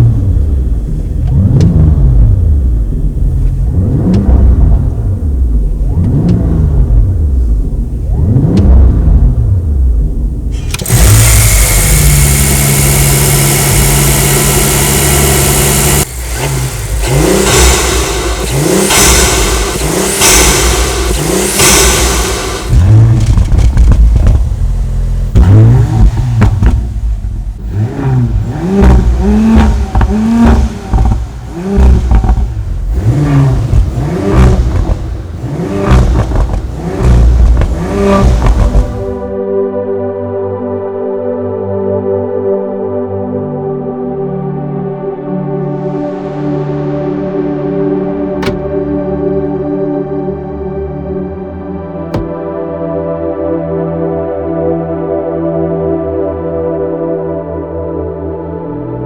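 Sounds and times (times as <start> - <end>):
car engine revving: 0.0 - 39.3, 47.4 - 49.6, 52.0 - 52.5.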